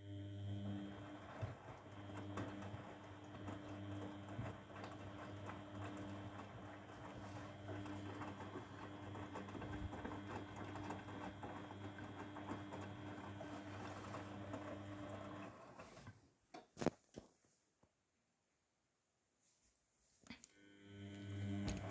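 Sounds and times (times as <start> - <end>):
washing machine inlet valve hum: 0.0 - 15.4, 20.6 - 21.9
water running in: 0.0 - 15.7, 20.9 - 21.9.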